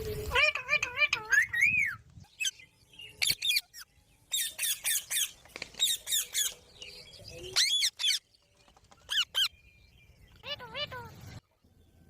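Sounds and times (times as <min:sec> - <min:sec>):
parakeet squawking and chirping: 0:00.2 - 0:06.5, 0:07.6 - 0:08.2, 0:09.1 - 0:09.5, 0:10.4 - 0:11.2.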